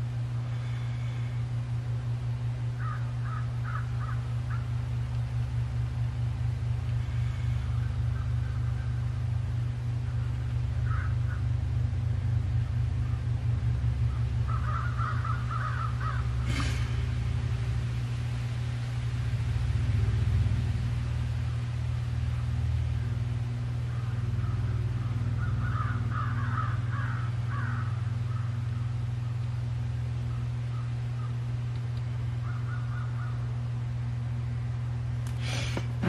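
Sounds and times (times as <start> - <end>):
low hum: 0.0 - 36.0
bird calling repeated notes: 14.0 - 16.4.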